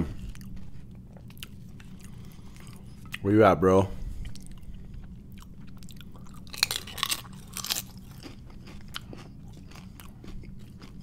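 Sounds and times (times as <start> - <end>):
chewing: 0.1 - 3.2, 4.2 - 11.0
tortilla chip crunching: 5.3 - 11.0.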